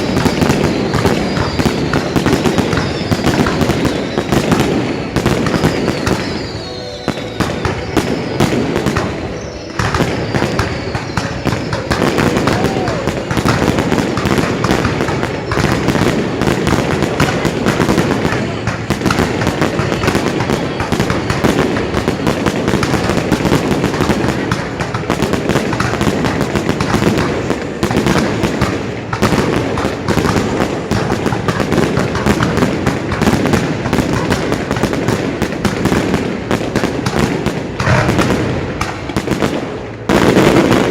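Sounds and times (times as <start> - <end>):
falling firework whistles: 0.0 - 24.7
fireworks bangs and crackling: 0.0 - 40.9.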